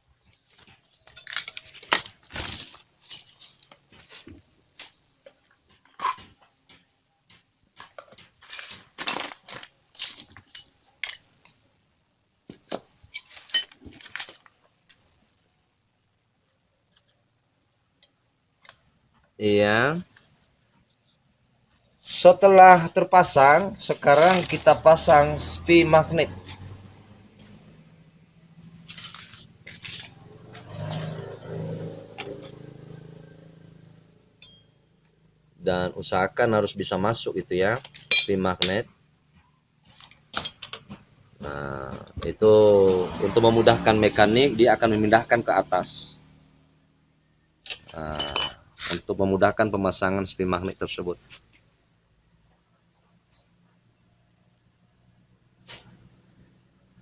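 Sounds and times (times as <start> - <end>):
metal parts clinking and scraping: 0.8 - 4.2, 8.0 - 11.4, 12.5 - 15.1, 23.8 - 24.7, 28.8 - 32.7, 37.8 - 38.4, 39.9 - 41.0, 47.6 - 49.1.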